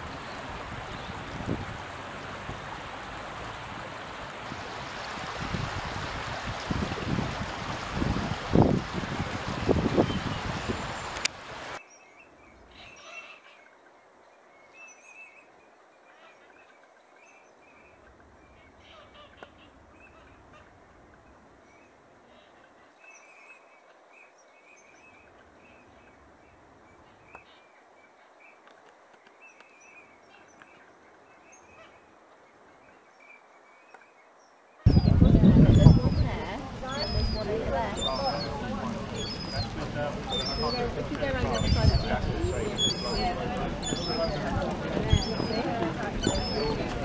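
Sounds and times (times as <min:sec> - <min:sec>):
outdoor background noise: 0:00.0 - 0:47.0
faint bird calls: 0:10.1 - 0:20.8, 0:21.7 - 0:47.0.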